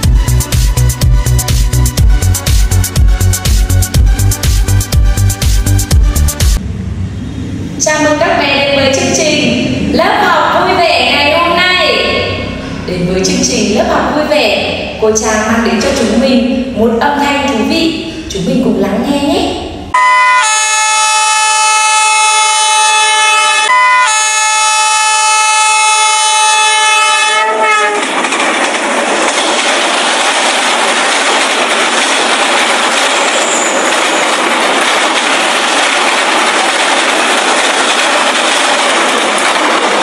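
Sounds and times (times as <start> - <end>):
train running on track: 0.0 - 40.0
train horn blast: 20.0 - 28.1.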